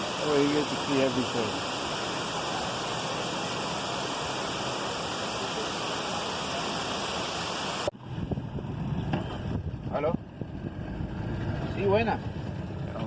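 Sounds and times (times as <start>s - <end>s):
waterfall pouring: 0.0s - 7.9s
low thumps and rumble: 8.1s - 13.0s.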